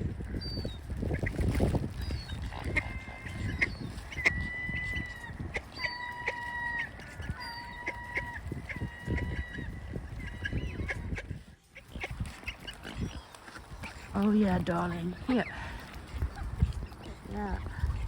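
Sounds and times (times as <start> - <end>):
wind rumble on microphone: 0.0 - 18.0
waterbirds whistling calls: 0.3 - 18.0.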